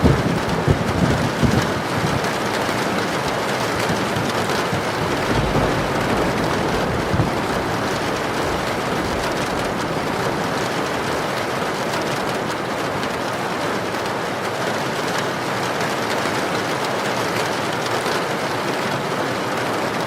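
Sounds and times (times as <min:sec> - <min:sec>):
heavy rain hissing: 0:00.0 - 0:15.5
wind: 0:00.0 - 0:20.0.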